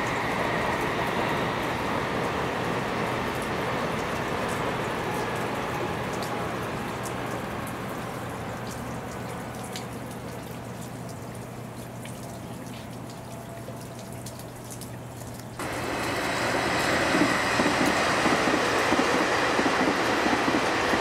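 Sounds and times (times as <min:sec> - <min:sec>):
passing train rumble: 0:00.0 - 0:08.6, 0:15.6 - 0:21.0
sharp raindrop ticks: 0:00.0 - 0:16.2
rain falling: 0:00.0 - 0:21.0.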